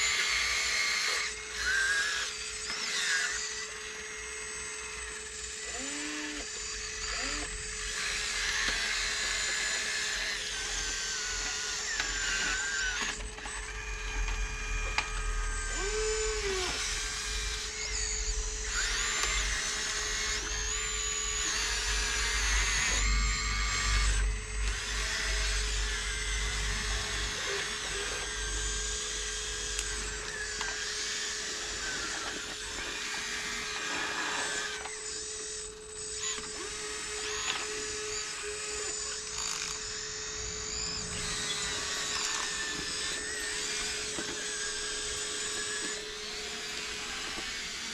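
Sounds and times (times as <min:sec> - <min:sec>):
small electric motors whining: 0:00.0 - 0:47.9
steady hum: 0:06.7 - 0:32.6, 0:38.3 - 0:46.3.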